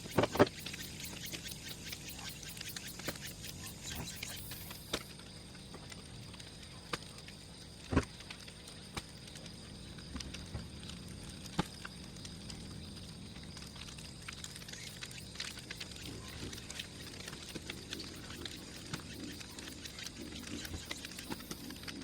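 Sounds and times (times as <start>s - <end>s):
bonfire crackling: 4.6s - 22.0s
sharp fire pops: 6.9s - 12.8s.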